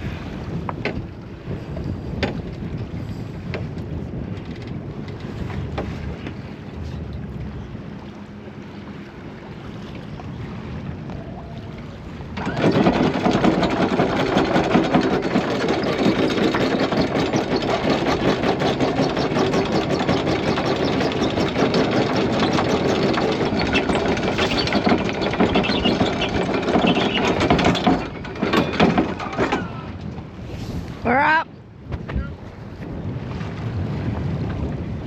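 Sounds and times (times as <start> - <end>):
windlass motor with chain rattling: 0.4 - 7.3, 12.0 - 31.4.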